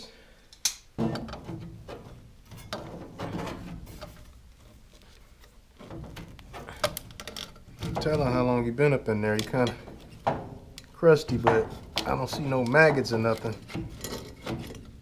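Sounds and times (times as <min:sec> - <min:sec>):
pliers scraping sheet metal: 0:09.3 - 0:15.0.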